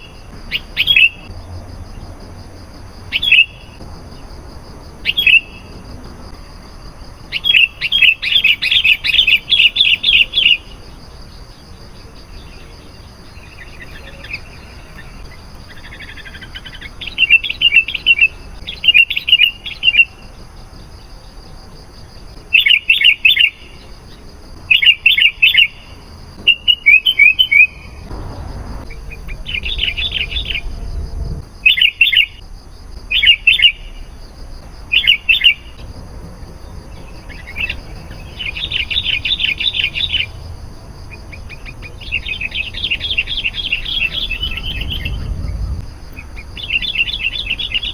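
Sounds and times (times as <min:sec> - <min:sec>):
bird chirping song: 0:00.0 - 0:02.2, 0:03.1 - 0:04.3, 0:05.0 - 0:32.4, 0:33.1 - 0:34.1, 0:34.9 - 0:47.9
low rumble: 0:28.0 - 0:31.7, 0:43.6 - 0:46.3.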